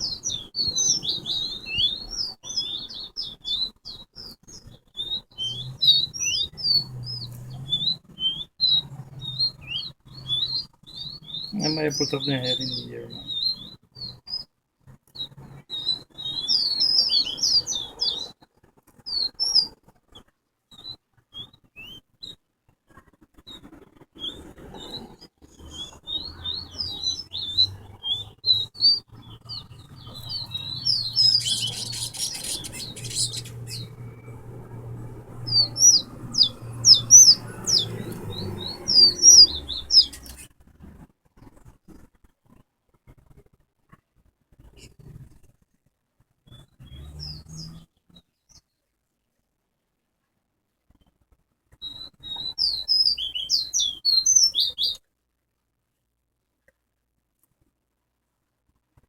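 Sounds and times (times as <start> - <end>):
finch singing high chirps: 0.0 - 14.5, 15.1 - 18.4, 19.1 - 19.8, 24.2 - 40.5, 46.5 - 47.8, 51.8 - 55.0.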